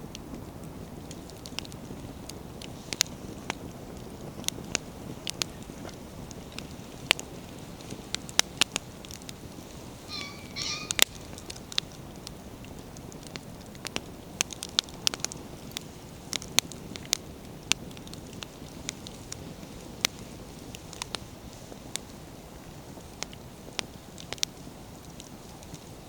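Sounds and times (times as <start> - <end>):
campfire crackling: 0.0 - 26.0
bird calls: 10.0 - 11.6.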